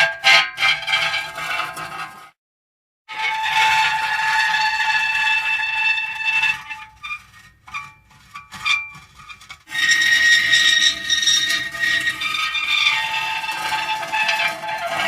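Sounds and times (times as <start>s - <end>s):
metal creaking: 6.6s - 15.0s.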